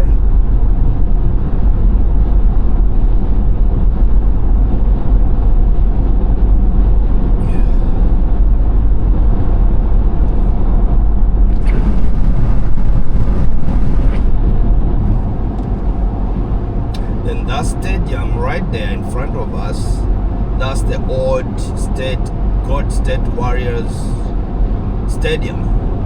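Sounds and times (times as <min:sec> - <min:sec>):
car tyre rumble on road: 0:00.1 - 0:17.3.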